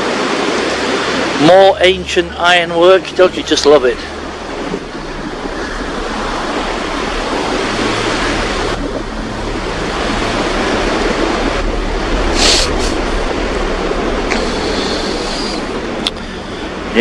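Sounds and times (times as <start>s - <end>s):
strong wind on microphone: 0.0s - 17.0s
sharp hiss: 12.3s - 13.0s.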